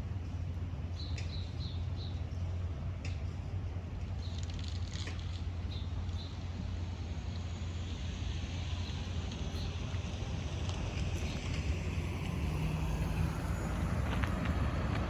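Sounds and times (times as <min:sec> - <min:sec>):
jet engine rumble: 0:05.9 - 0:15.0.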